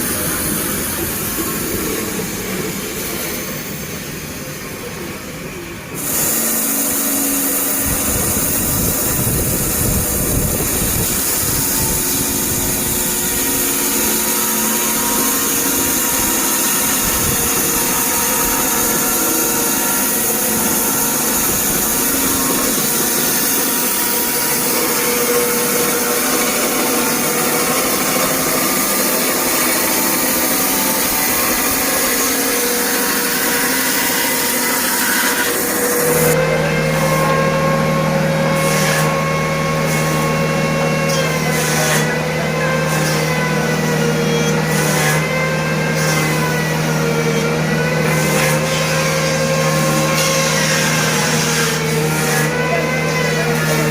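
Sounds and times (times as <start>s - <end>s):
band sawmill running: 0.0s - 53.9s.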